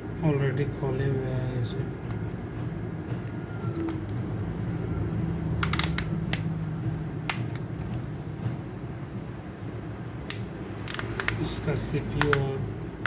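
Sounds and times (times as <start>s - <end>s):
steady low hum: 0.0s - 13.0s
small tools clicking and tapping: 5.6s - 6.5s, 10.3s - 11.5s, 12.1s - 12.6s.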